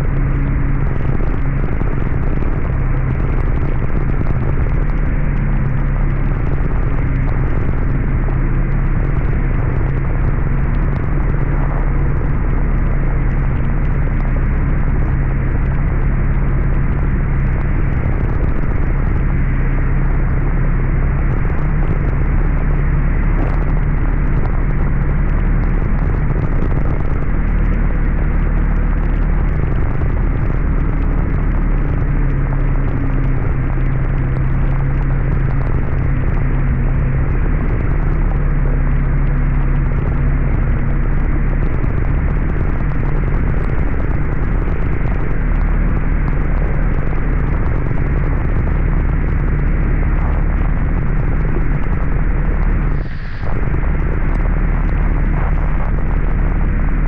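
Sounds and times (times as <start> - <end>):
heavy rain pouring: 0.0 - 57.0
steady low hum: 0.0 - 57.0.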